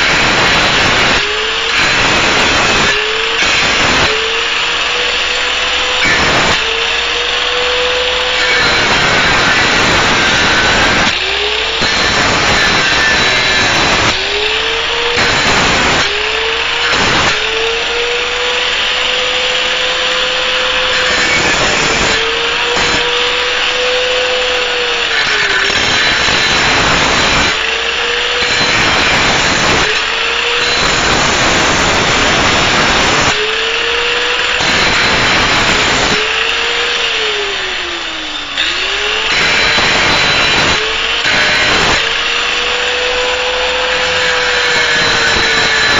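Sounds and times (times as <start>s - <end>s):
angle grinder grinding metal: 0.0s - 45.9s.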